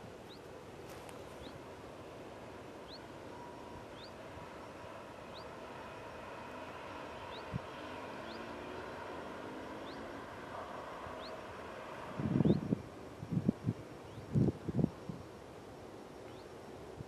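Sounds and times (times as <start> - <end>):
distant train rumble: 0.0 - 17.0
bird chirping: 0.2 - 0.5, 1.3 - 1.6, 2.8 - 5.6, 7.3 - 7.6, 9.8 - 10.2, 11.2 - 11.4, 16.2 - 16.6.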